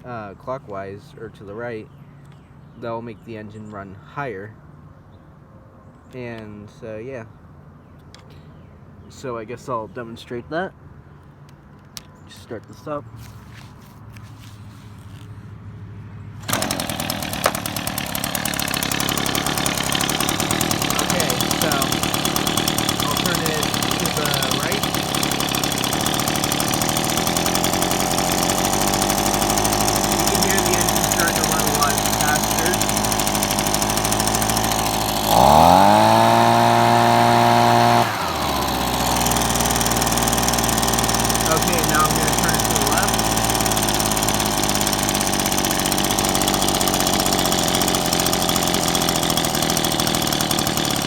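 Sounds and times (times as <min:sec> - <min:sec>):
leaf blower engine running: 0:13.2 - 0:15.5, 0:16.4 - 0:51.0.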